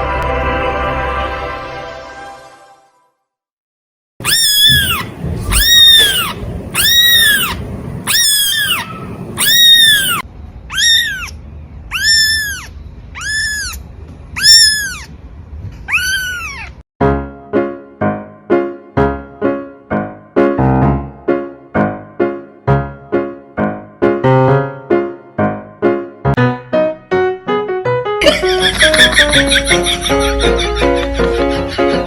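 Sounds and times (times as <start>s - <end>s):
cat meowing: 4.2s - 15.2s, 15.8s - 16.8s.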